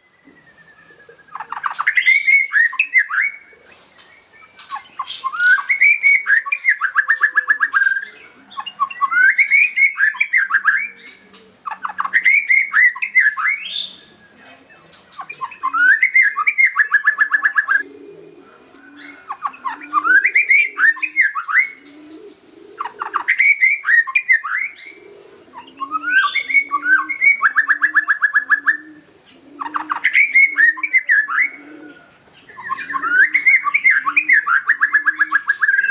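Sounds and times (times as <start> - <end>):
bird singing whistles and trills: 0.0 - 35.9
low cooing notes: 17.6 - 23.2, 24.8 - 35.9.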